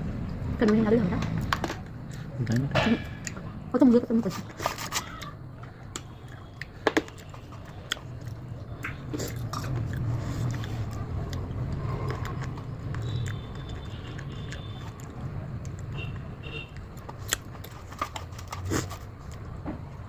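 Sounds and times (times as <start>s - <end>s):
person biting and chewing food: 4.6s - 15.9s, 16.8s - 19.5s.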